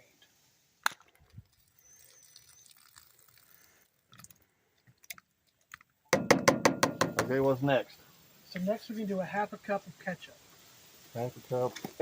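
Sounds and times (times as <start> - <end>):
faint steady hiss: 0.0 - 12.0
soft knock: 6.2 - 7.4.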